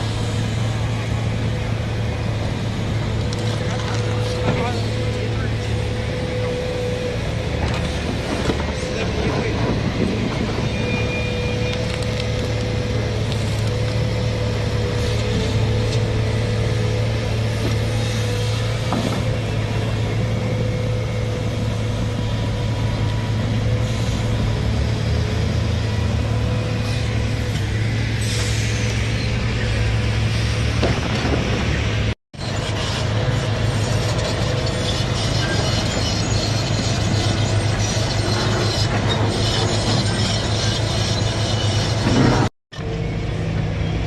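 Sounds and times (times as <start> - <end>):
excavator diesel engine: 0.0 - 44.0
knocks and clanks: 30.8 - 31.9, 41.7 - 42.5.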